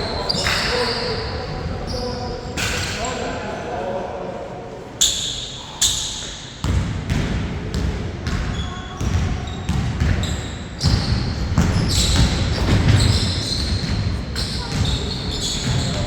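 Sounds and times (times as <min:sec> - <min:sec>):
shoe squeaks: 0:00.0 - 0:03.2, 0:05.0 - 0:06.4, 0:08.5 - 0:16.0
basketball bouncing: 0:06.6 - 0:14.0.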